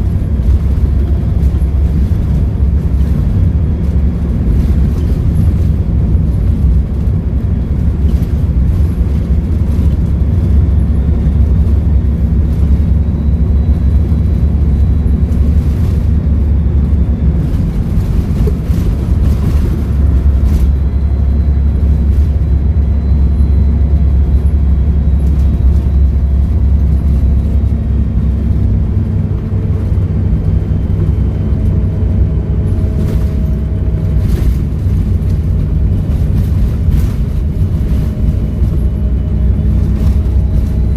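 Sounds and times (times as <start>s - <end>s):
bus diesel engine droning: 0.0s - 40.9s
faint turbo whistle: 20.5s - 27.4s.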